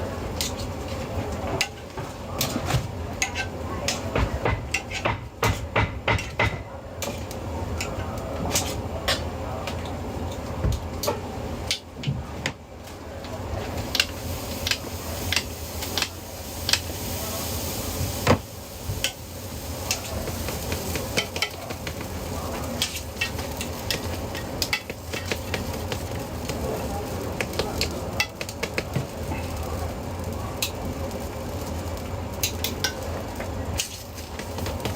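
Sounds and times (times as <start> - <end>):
food sizzling: 7.0 - 34.9
metal utensils clinking on pans: 19.8 - 29.5, 32.4 - 34.9.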